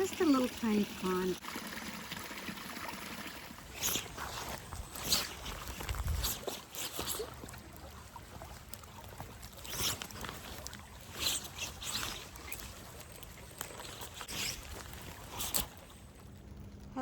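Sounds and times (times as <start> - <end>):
creek trickling into pond: 0.0 - 16.5
brief rustles: 3.8 - 7.4, 9.2 - 15.8.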